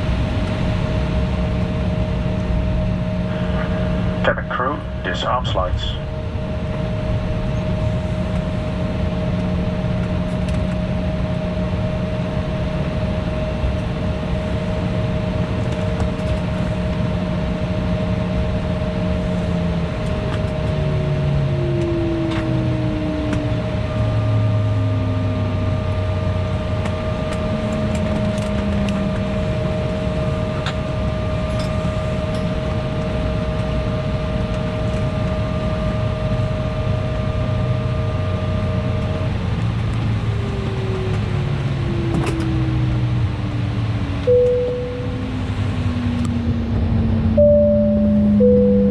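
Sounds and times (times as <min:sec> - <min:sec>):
jet engines winding down: 0:00.0 - 0:48.9
higher steady tone: 0:44.2 - 0:48.9.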